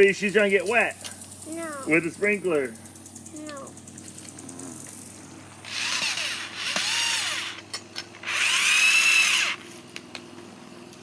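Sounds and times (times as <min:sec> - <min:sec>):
power drill driving screws: 0:05.6 - 0:09.7.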